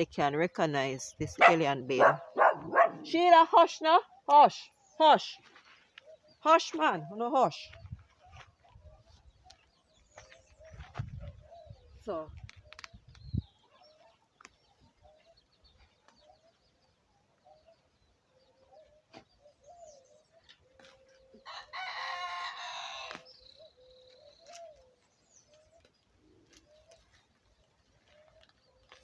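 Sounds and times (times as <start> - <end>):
rooster crowing: 21.4 - 23.2.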